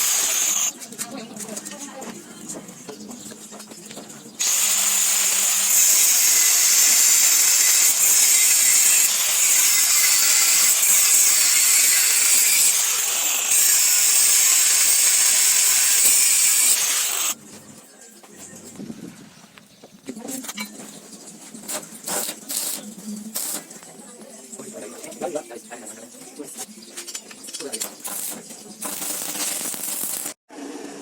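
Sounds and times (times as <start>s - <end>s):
power tool whining: 0.0s - 0.7s, 4.4s - 17.4s, 28.1s - 30.4s.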